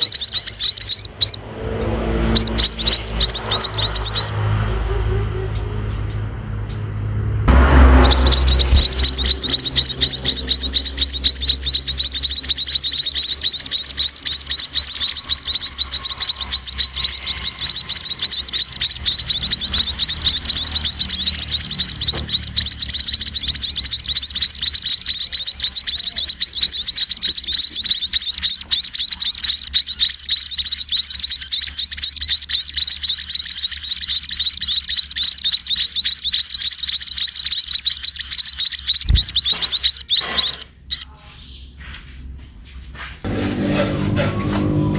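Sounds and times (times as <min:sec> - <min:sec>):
chicks begging chirps: 0:00.0 - 0:06.8, 0:07.5 - 0:41.8.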